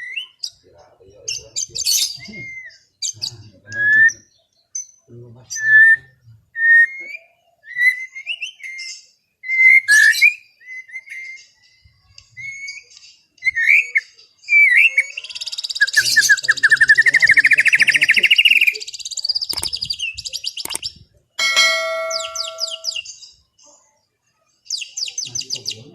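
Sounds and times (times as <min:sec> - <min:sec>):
bird whistling song: 0:00.0 - 0:00.6, 0:01.6 - 0:04.4, 0:05.5 - 0:21.0, 0:21.6 - 0:23.2
fast rising bird trill: 0:14.8 - 0:23.0.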